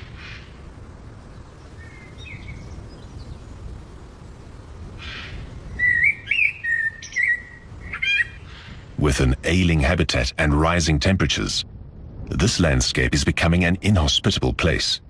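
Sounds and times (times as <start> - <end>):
bird chirping and singing: 1.5 - 3.5, 5.7 - 8.8
steady low rumble: 7.4 - 15.0.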